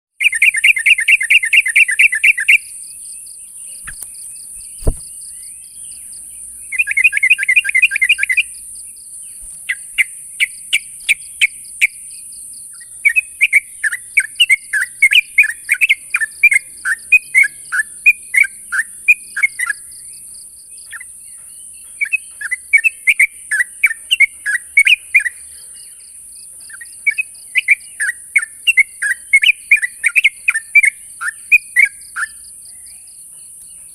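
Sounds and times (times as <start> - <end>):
bird chattering calls: 0.2 - 8.7
steady high hiss: 2.5 - 5.4.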